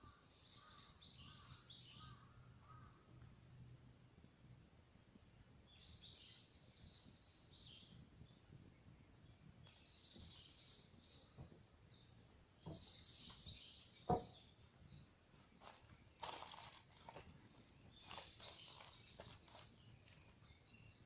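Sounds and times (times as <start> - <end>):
songbird chirping: 0.0 - 4.8, 5.6 - 21.0
wood fire crackling: 2.2 - 13.5, 15.3 - 20.6.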